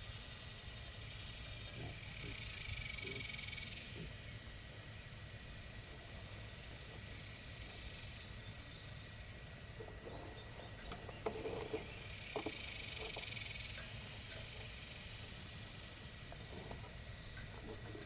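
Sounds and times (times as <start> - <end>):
steady low hiss: 0.0 - 18.0
pigs grunting: 1.7 - 4.2.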